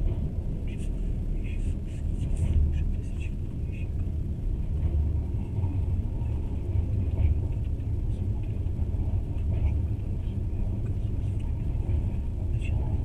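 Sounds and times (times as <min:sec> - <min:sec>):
train rumbling on track: 0:00.0 - 0:13.0
train knock: 0:04.6 - 0:07.9.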